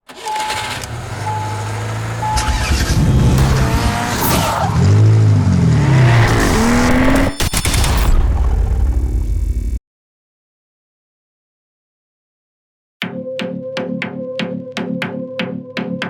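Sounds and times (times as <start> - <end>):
car engine revving: 0.1 - 9.7
short beeps: 2.2 - 3.6
music: 13.0 - 16.0.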